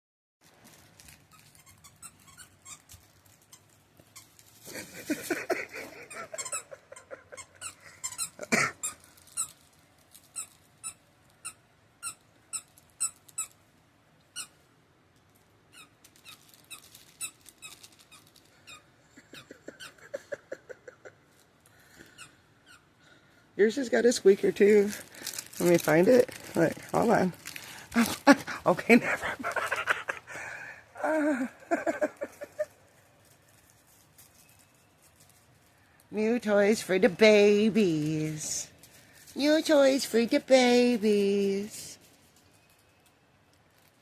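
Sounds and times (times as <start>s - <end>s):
dog toy squeaking: 1.0s - 4.6s, 6.1s - 13.6s, 14.3s - 14.7s, 15.7s - 20.2s, 22.0s - 22.9s.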